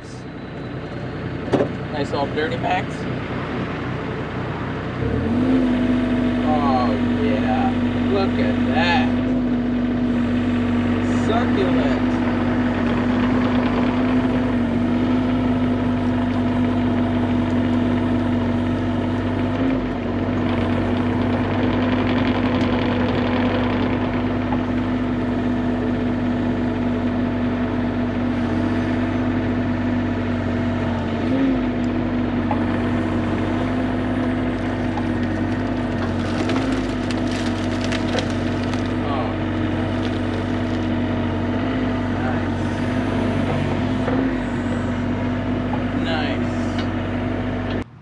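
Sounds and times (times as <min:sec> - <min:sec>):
excavator diesel engine droning: 0:00.0 - 0:48.0.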